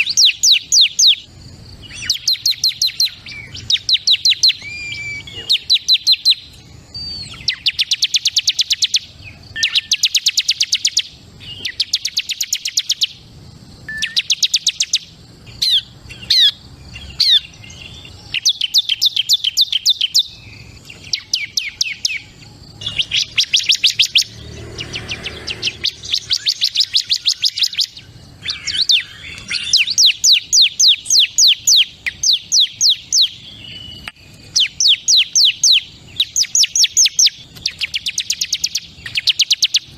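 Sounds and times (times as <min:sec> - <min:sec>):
bird singing rapid high trills: 0:00.0 - 0:39.9.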